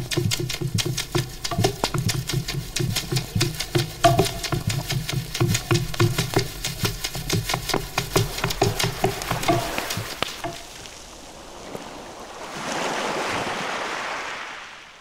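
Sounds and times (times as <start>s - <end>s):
low pulsing beat: 0.0s - 10.7s
rapid clicking and knocking: 0.0s - 10.7s.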